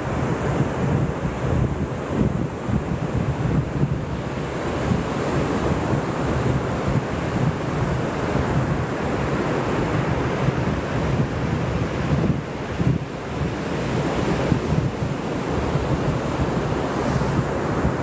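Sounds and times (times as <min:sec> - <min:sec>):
ocean surf on a beach: 0:00.0 - 0:18.0
wind on microphone: 0:00.0 - 0:18.0.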